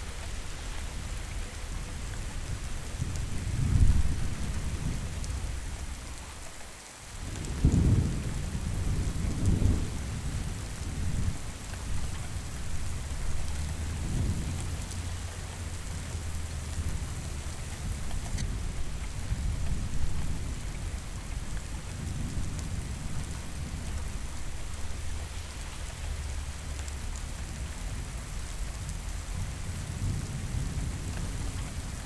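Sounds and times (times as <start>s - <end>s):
steady rain hiss: 0.0s - 32.0s
rolling thunder: 7.2s - 25.2s.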